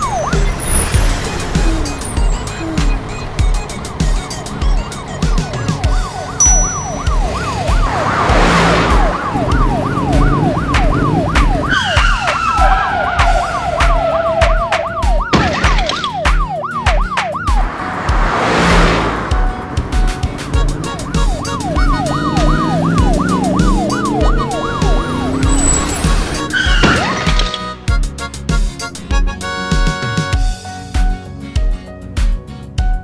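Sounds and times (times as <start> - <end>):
police siren yelping: 0.0 - 17.6, 20.5 - 27.5
background music with steady beat: 1.4 - 18.4
tyre screech: 25.4 - 27.4.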